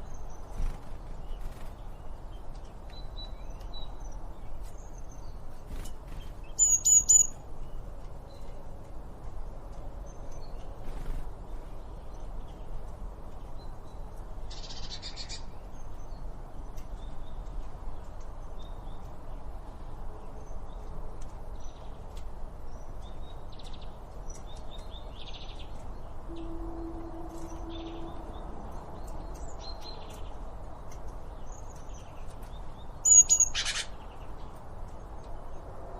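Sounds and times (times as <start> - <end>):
songbirds chirping and trilling: 0.0 - 35.9
low background rumble: 22.6 - 32.9.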